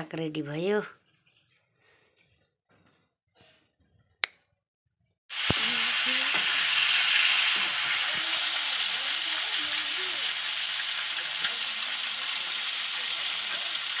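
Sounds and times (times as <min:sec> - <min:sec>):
chicken sizzling in hot oil: 0:05.3 - 0:14.0.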